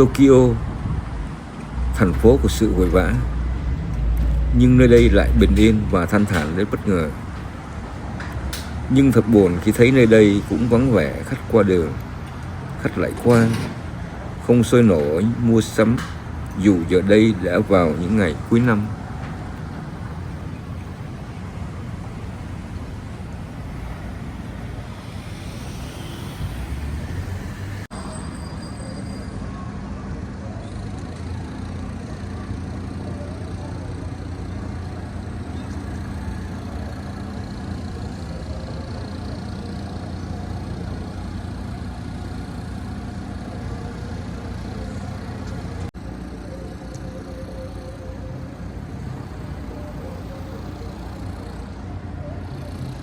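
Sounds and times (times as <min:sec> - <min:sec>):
vehicle passing: 0:00.0 - 0:27.9
road traffic: 0:00.0 - 0:53.0.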